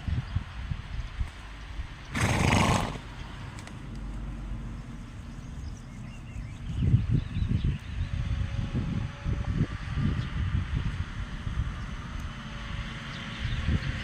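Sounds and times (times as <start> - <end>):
horse snorting: 2.1 - 3.1.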